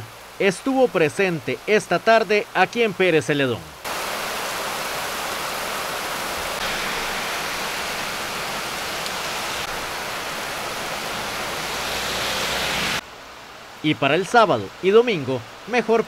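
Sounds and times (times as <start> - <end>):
heavy rain on pavement: 3.8 - 13.8.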